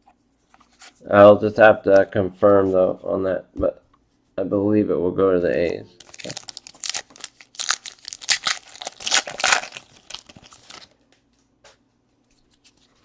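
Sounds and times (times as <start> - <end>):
card pack wrapper crinkling: 6.0 - 11.0.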